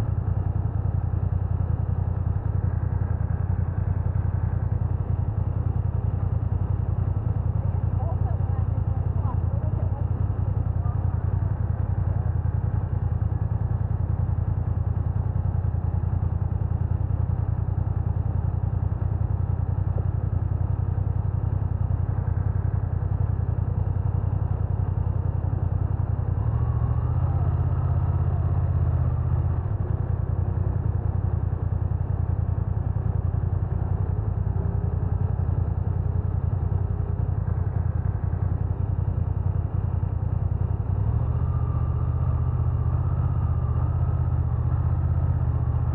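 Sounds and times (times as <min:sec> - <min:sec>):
motorcycle engine low rumble: 0:00.0 - 0:45.9.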